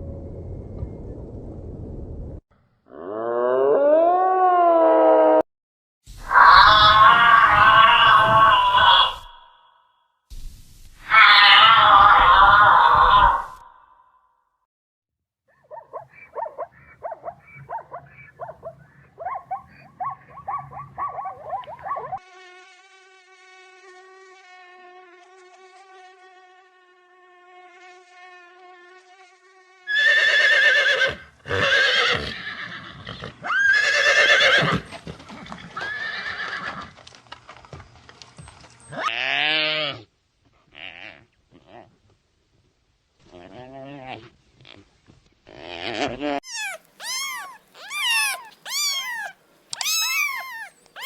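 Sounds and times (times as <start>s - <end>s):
horse whinnies: 6.3s - 9.4s, 29.9s - 34.9s, 35.7s - 37.0s, 46.4s - 51.0s
quick short animal calls: 46.4s - 51.0s.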